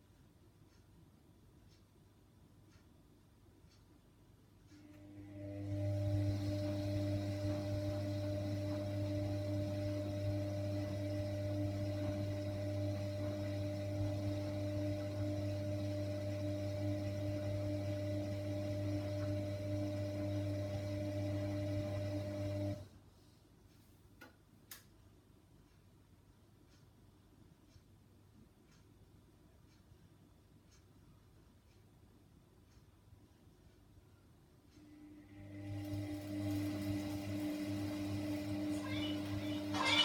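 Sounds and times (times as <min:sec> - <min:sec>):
faint clicks: 0:03.6 - 0:05.1, 0:23.7 - 0:25.9
washing machine hum: 0:04.7 - 0:23.0, 0:34.8 - 0:40.0.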